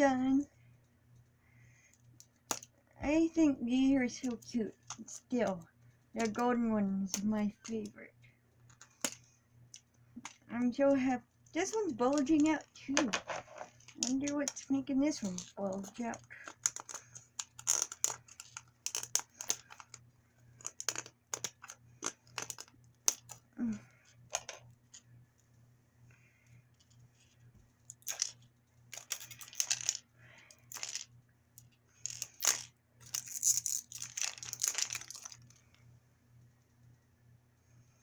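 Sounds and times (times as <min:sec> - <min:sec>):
packaging crinkling: 0:32.3 - 0:35.6.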